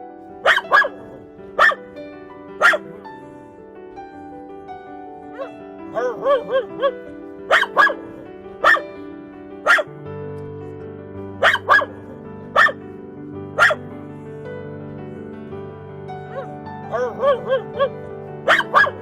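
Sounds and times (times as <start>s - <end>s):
background music: 0.0s - 19.0s
dog barking: 0.2s - 9.9s, 11.4s - 12.9s, 13.5s - 14.4s, 16.2s - 19.0s.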